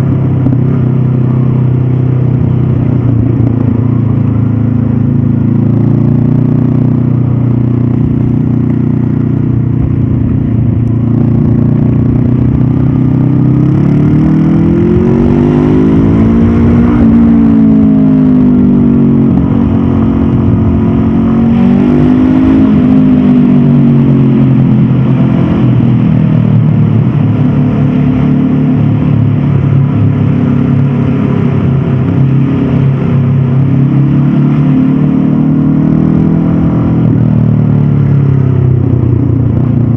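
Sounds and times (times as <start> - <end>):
motorcycle engine running: 0.0 - 39.9
wind noise: 9.4 - 34.9.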